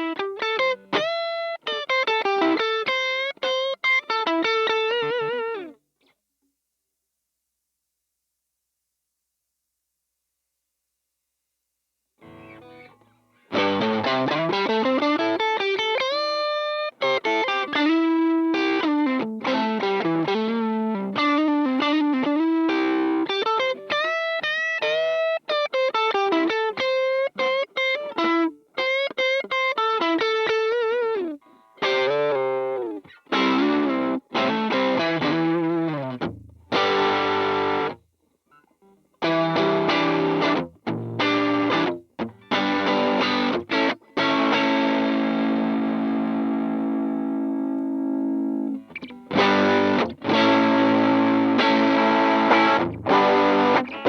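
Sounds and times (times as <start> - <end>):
distorted electric guitar: 12.2 - 23.9, 31.8 - 38.0, 39.2 - 54.0.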